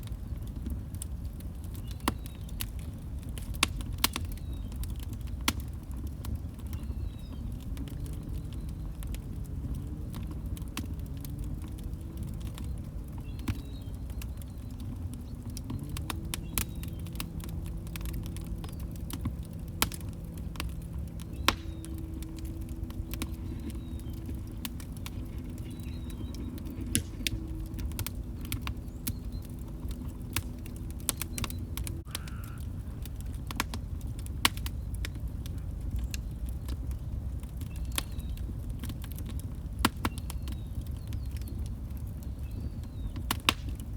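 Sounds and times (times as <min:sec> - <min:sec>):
log fire crackling: 0:00.0 - 0:43.9.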